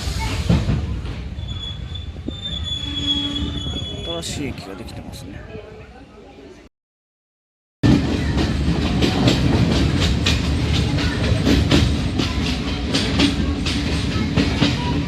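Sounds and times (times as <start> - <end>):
train rumble and rattle: 0.0 - 5.4, 7.8 - 15.0
wheels clacking over rail joints: 7.9 - 15.0.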